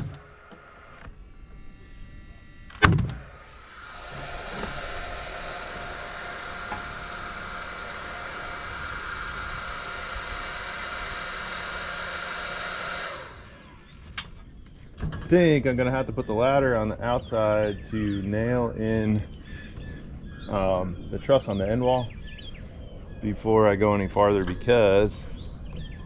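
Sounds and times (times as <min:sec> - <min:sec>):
mechanical whirring hum: 0:00.0 - 0:26.0
sharp bang: 0:02.7 - 0:03.5.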